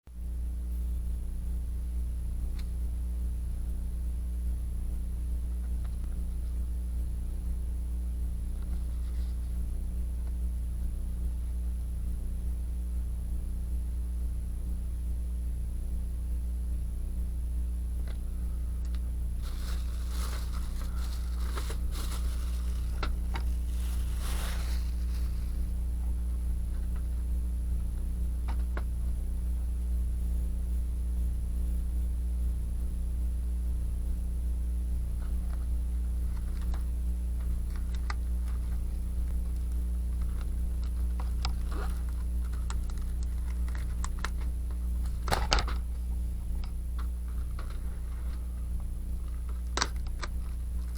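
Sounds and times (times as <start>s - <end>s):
electrical hum: 0.1s - 50.9s.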